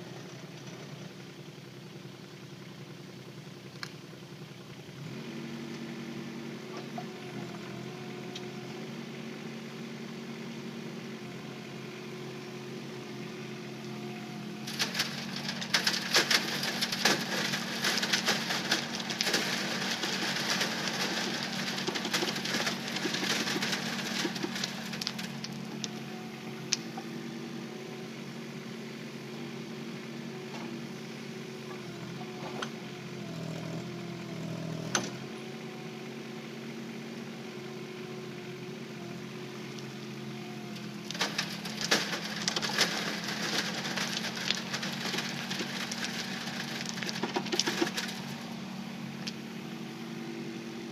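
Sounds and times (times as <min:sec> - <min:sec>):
small diesel engine running: 0:00.0 - 0:50.9
stones rattling: 0:14.6 - 0:26.0, 0:40.8 - 0:48.5.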